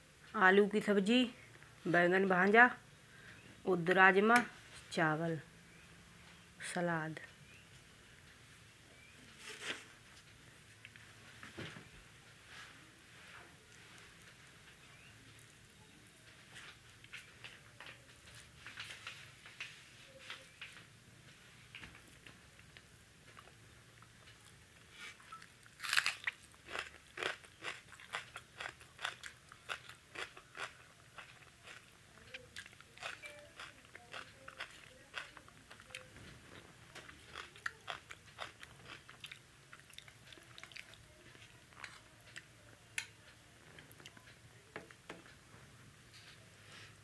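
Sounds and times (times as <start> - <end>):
person chewing crunchy food: 25.0 - 42.0.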